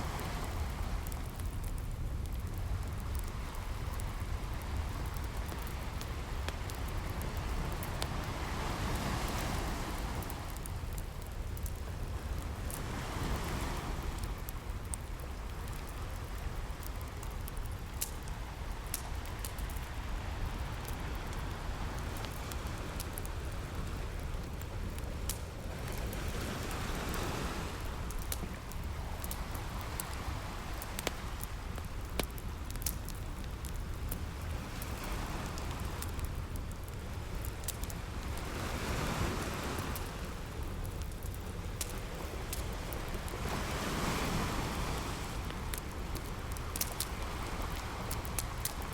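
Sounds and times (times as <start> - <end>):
campfire crackling: 0.0 - 48.9
ocean waves washing in: 42.1 - 48.9.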